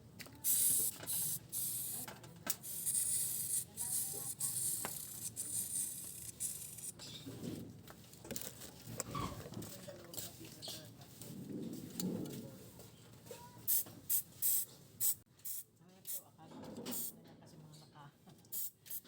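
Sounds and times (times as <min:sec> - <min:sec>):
spray hissing in bursts: 0:00.4 - 0:02.1.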